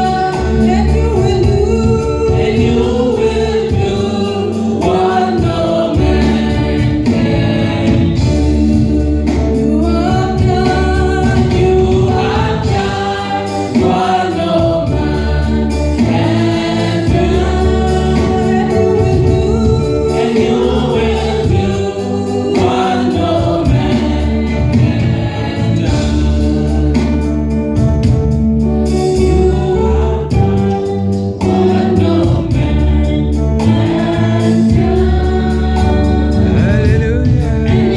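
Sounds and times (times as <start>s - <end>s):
choir singing gospel music: 0.0s - 37.9s.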